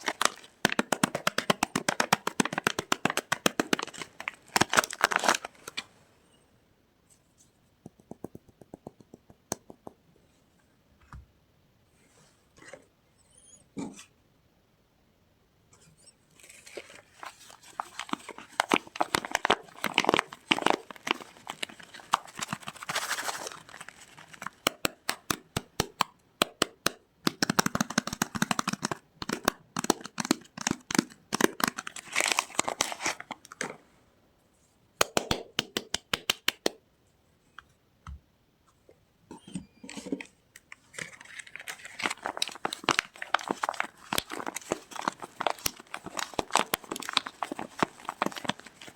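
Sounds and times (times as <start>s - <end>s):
wrapping crinkling and tearing: 0.0s - 5.9s, 16.4s - 25.3s, 28.9s - 33.6s, 40.8s - 48.9s.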